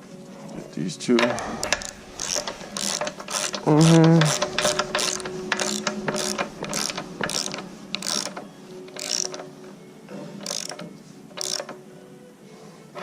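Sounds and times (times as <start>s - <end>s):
ratchet wrench clicking: 1.6s - 8.4s, 9.0s - 9.4s, 10.4s - 11.8s.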